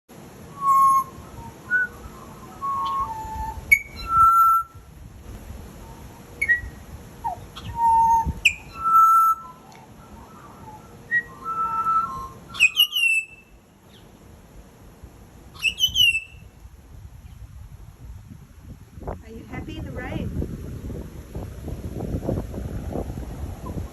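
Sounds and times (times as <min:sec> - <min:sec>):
bird whistling and chirping: 0:00.5 - 0:04.8, 0:05.8 - 0:14.0, 0:15.6 - 0:16.5.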